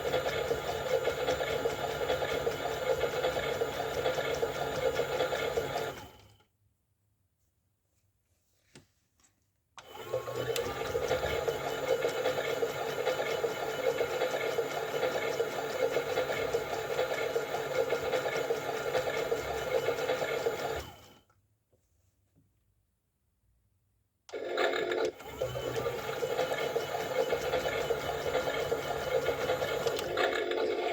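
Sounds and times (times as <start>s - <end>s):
small electric motor running: 25.2s - 30.9s.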